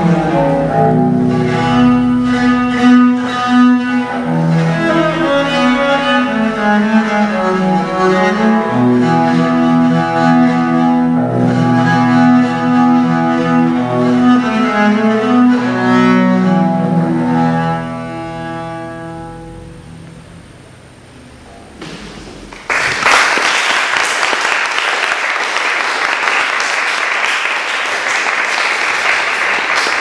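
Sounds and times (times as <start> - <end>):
viola da gamba bowed notes: 0.0 - 22.6.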